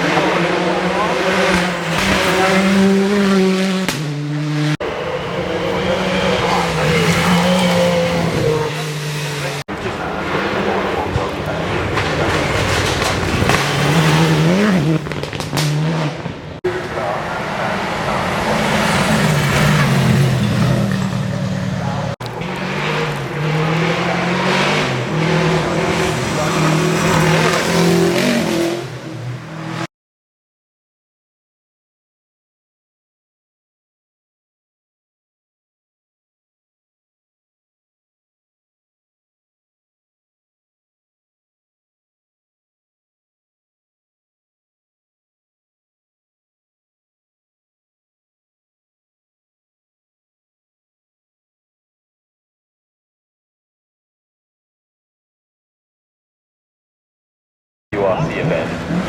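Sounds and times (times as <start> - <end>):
rally car engines revving high: 0.0 - 29.9, 58.0 - 59.0.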